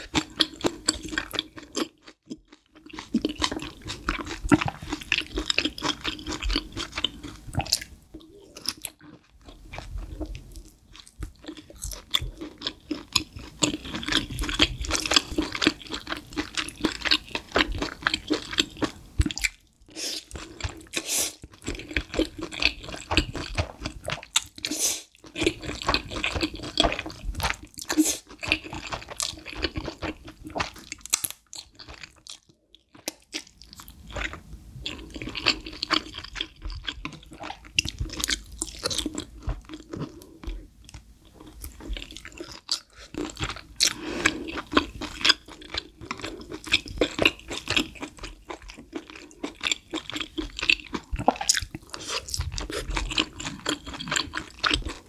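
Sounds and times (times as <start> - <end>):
wet mouth sounds: 50.1 - 55.0.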